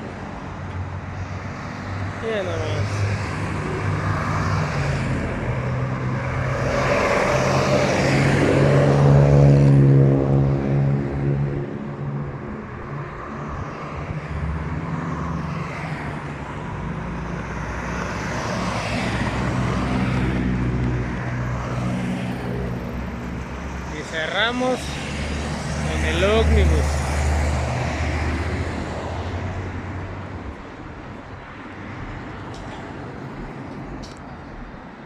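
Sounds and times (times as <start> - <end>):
vehicles driving past: 0.0 - 35.0.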